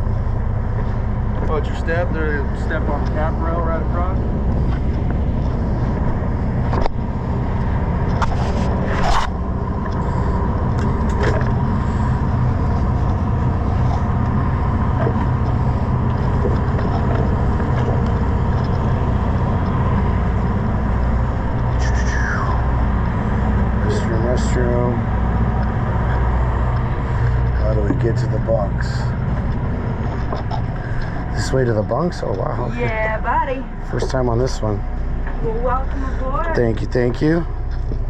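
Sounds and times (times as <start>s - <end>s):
boat engine idling: 0.0s - 38.0s
knocks and scrapes: 8.1s - 9.4s.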